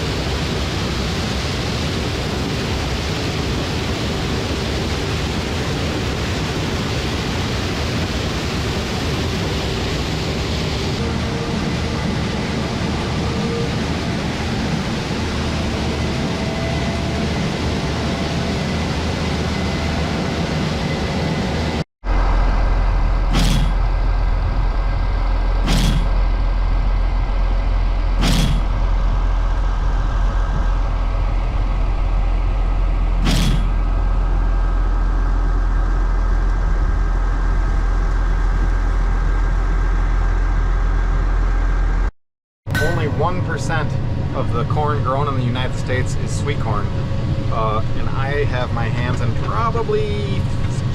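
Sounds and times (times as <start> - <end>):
farm machine engine running: 21.3 - 42.1.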